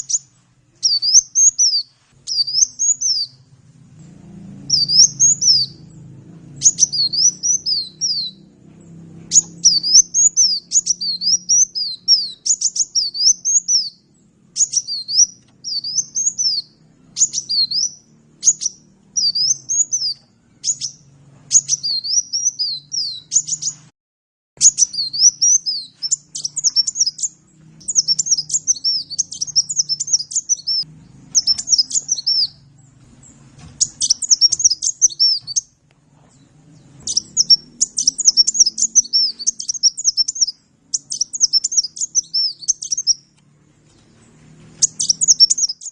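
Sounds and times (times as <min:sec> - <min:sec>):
bird twittering: 0:00.0 - 0:03.5, 0:04.6 - 0:08.6, 0:09.2 - 0:23.9, 0:24.6 - 0:35.7, 0:36.8 - 0:43.3, 0:44.8 - 0:45.9
faint low hum: 0:00.0 - 0:23.8.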